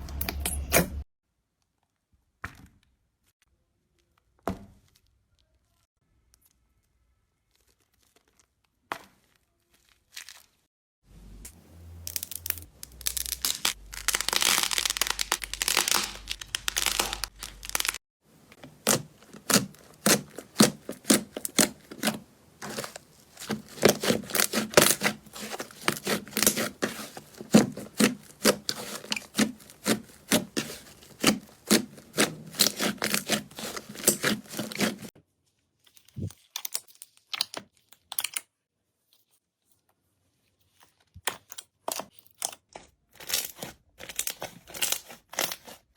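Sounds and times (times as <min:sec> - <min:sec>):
slime squished by hand crackling: 0:18.7 - 0:35.1.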